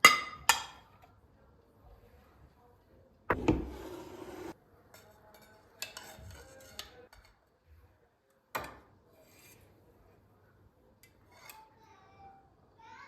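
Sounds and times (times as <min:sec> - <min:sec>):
dishes and cutlery clattering: 0:04.9 - 0:07.4.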